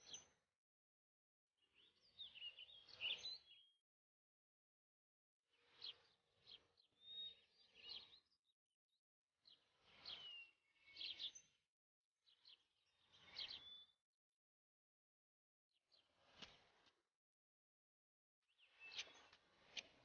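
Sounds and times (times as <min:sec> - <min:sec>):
birds chirping: 0:09.5 - 0:11.4, 0:18.6 - 0:19.9.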